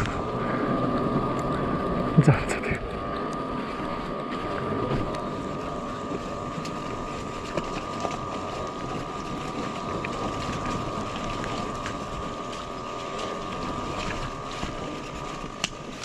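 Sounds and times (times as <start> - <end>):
electric motorcycle whine: 0.0 - 16.0
clicks and rattles over stones: 6.0 - 16.0.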